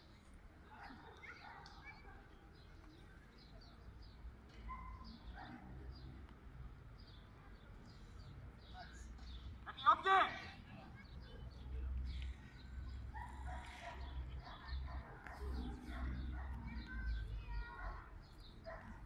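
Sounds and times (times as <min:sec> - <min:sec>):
small birds chirping: 0:00.1 - 0:09.7, 0:10.5 - 0:19.0
distant voices murmuring: 0:10.4 - 0:19.0.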